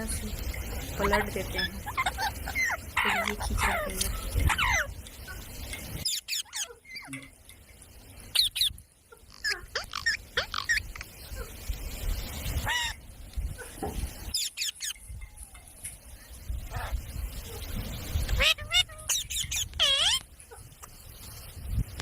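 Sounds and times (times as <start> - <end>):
parrot squawking: 0.9 - 5.4, 6.0 - 7.2, 8.3 - 11.5, 12.6 - 13.0, 14.3 - 15.0, 18.3 - 20.3.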